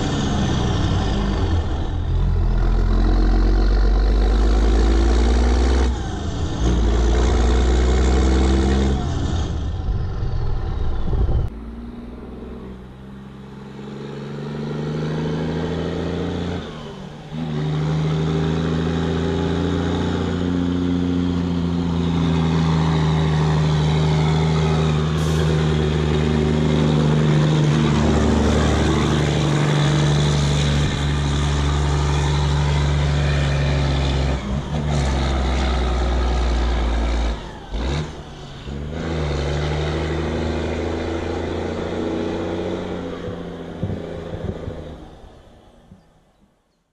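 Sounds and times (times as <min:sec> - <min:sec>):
truck engine under load: 0:00.0 - 0:46.3.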